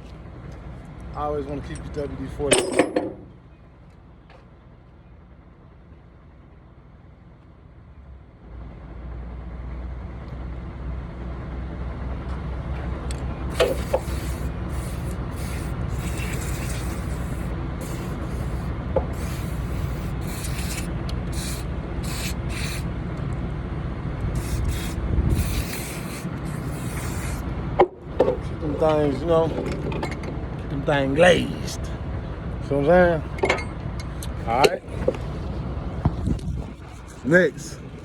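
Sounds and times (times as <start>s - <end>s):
steady low rumble: 9.9s - 38.0s
aerosol spray hissing bursts: 13.5s - 22.9s, 24.4s - 27.5s.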